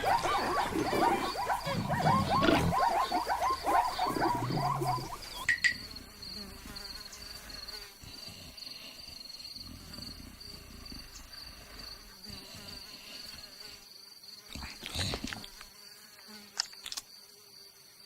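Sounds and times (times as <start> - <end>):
animal calls chattering: 0.0 - 6.8
insects chirping in pulses: 0.0 - 14.5.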